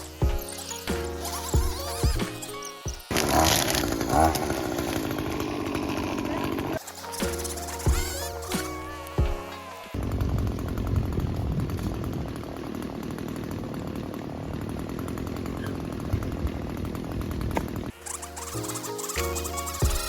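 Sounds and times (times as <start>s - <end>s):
background music: 0.0s - 10.2s, 17.9s - 20.0s
string trimmer engine running: 3.0s - 20.0s.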